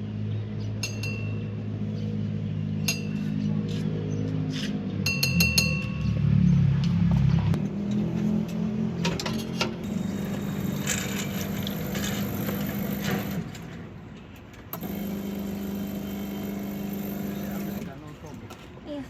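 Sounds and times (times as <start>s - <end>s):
steady mechanical hum: 7.5s - 19.0s.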